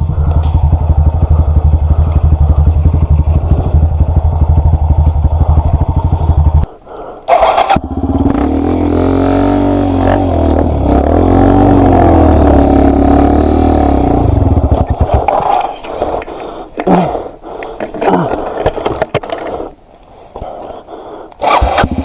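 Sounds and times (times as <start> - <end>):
motorcycle engine running: 0.0 - 6.7, 7.3 - 15.6, 21.4 - 22.0.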